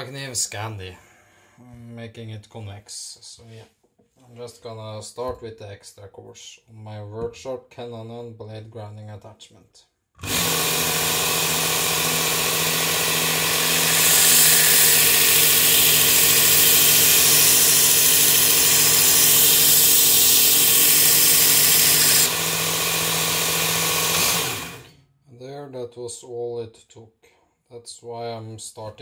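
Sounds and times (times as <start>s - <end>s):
belt grinder motor hum: 10.2s - 25.0s.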